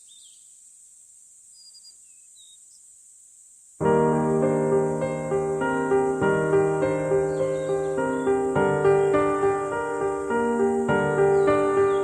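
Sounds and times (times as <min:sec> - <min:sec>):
short bird chirps: 0:00.0 - 0:00.5, 0:01.5 - 0:02.9
high insect drone: 0:00.0 - 0:12.0
piano background music: 0:03.8 - 0:12.0.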